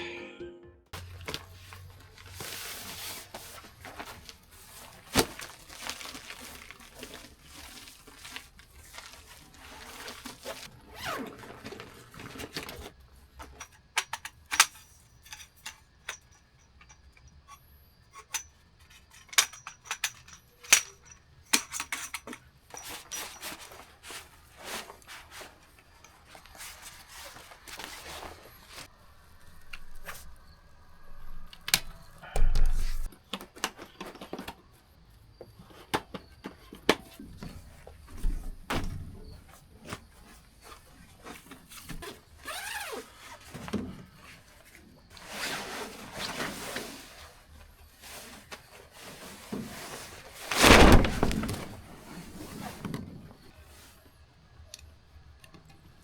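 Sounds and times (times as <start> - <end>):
rustling: 1.0 - 13.0, 48.0 - 53.9
objects clicking and clinking: 18.2 - 23.8.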